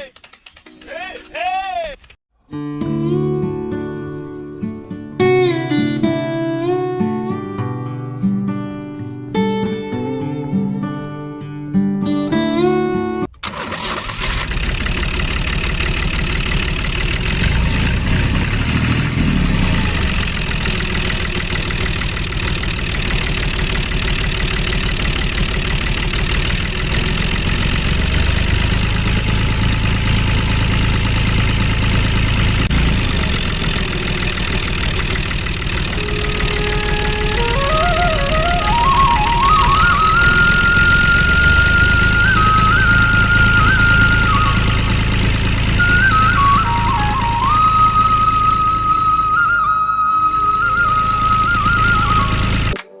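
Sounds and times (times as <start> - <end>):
tractor engine chugging: 0.0 - 2.2, 13.3 - 52.8
guitar music: 2.5 - 13.3, 35.6 - 45.1, 45.8 - 53.0.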